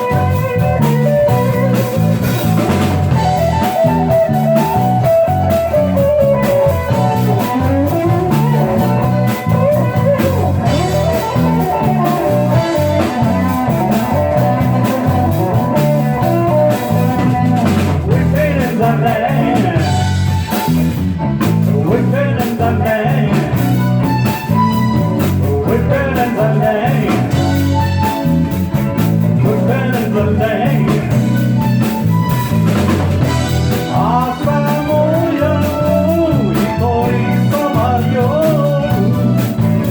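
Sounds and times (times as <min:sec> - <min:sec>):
person singing: 0:00.0 - 0:20.7, 0:21.5 - 0:28.2, 0:29.4 - 0:32.0, 0:33.2 - 0:39.9
live blues band playing: 0:00.0 - 0:39.9.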